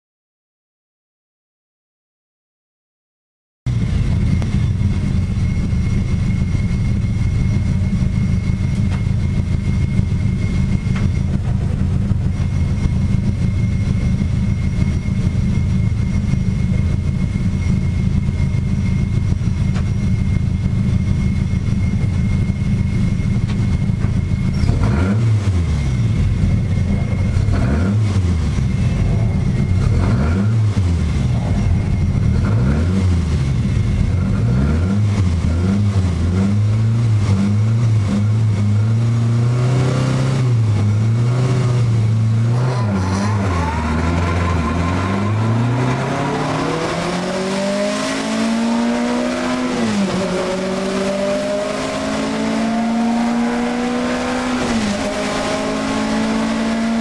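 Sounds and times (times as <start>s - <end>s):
car engine idling: 3.7s - 39.5s
engine revving in throttle blips: 3.7s - 57.0s.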